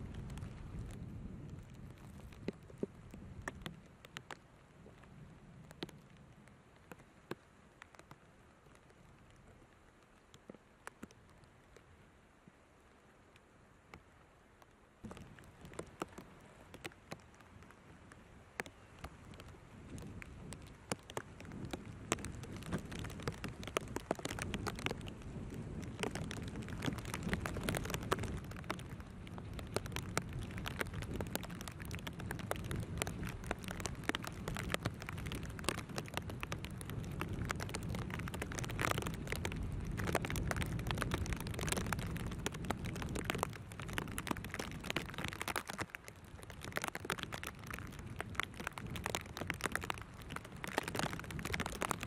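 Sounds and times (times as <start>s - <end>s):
wind buffeting microphone: 0.0s - 6.4s, 17.1s - 52.0s
rain drops hitting: 0.0s - 52.0s.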